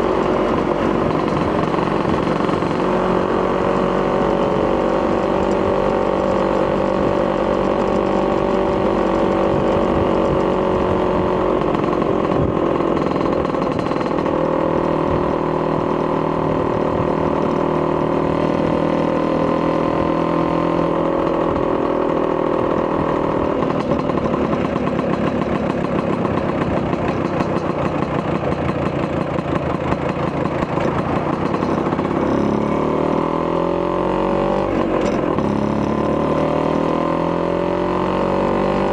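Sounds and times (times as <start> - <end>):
scooter engine running: 0.0 - 38.9.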